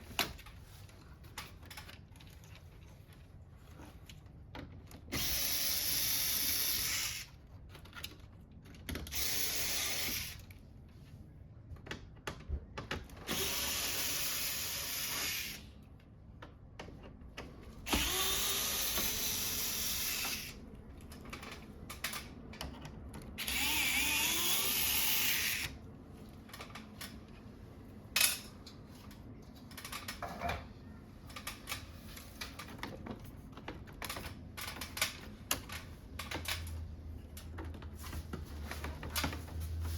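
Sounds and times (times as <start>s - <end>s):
electric screwdriver running: 9.1s - 10.4s, 13.3s - 15.6s, 17.9s - 20.6s, 23.4s - 25.7s
parts clicking and knocking: 11.6s - 15.0s, 15.9s - 24.9s, 26.2s - 27.4s, 28.1s - 39.8s.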